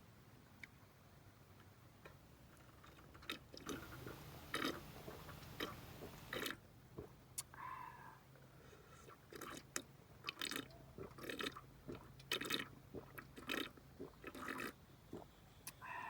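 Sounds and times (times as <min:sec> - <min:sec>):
person slurping and chewing soup: 0:03.6 - 0:06.6, 0:09.0 - 0:15.8.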